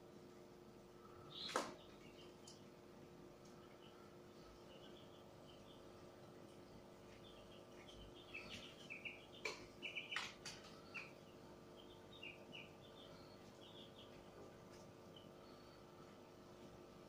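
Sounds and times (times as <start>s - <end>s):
faint steady hum: 0.0s - 17.0s
faint high chirps: 3.4s - 16.1s.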